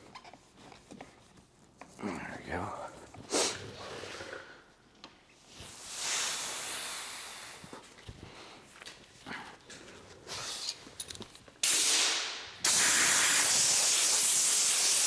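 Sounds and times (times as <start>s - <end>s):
hissing spray: 11.6s - 15.0s.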